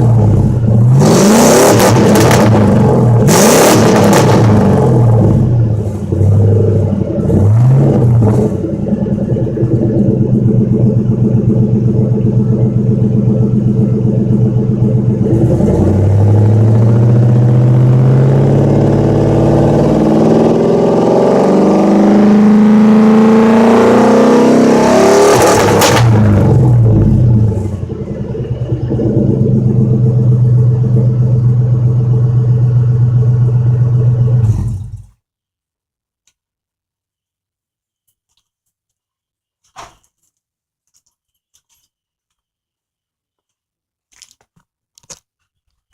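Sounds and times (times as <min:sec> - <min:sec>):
truck engine idling and revving: 0:00.0 - 0:35.2.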